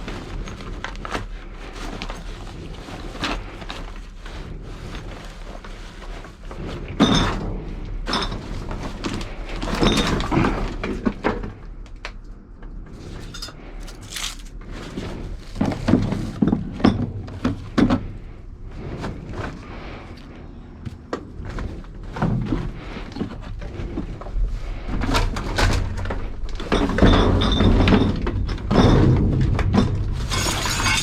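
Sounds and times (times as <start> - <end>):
steady low hum: 0.0 - 31.0
hard objects knocking and clattering: 15.5 - 18.1, 25.1 - 31.0.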